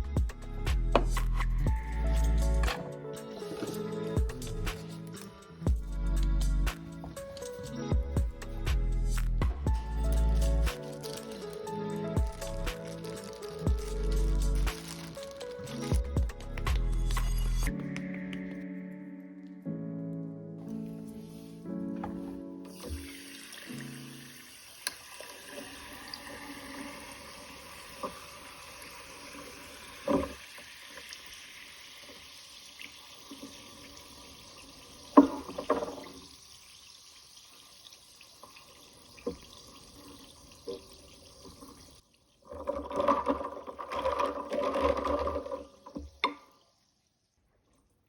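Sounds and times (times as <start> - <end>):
tap water running: 0.9 - 5.9, 9.7 - 17.5, 22.0 - 47.0.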